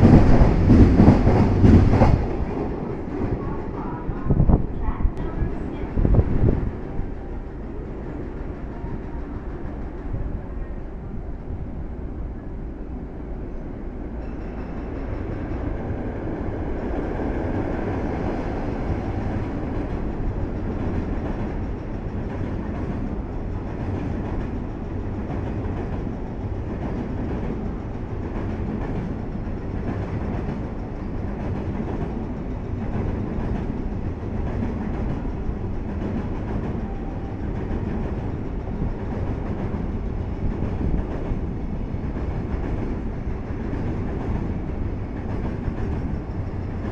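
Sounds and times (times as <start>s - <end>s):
freight train rumbling past: 0.0s - 46.9s.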